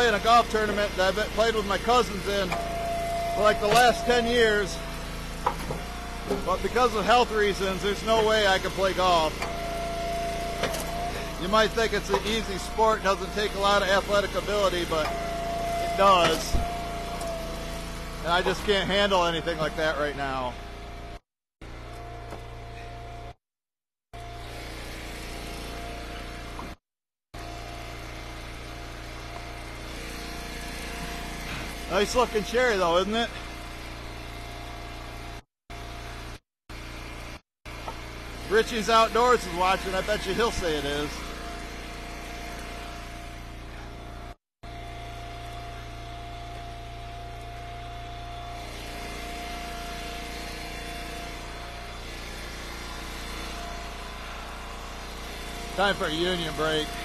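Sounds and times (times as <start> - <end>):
thin steady whine: 0.0 - 17.3
gasoline engine running: 0.0 - 23.4, 24.2 - 26.8, 27.4 - 57.0.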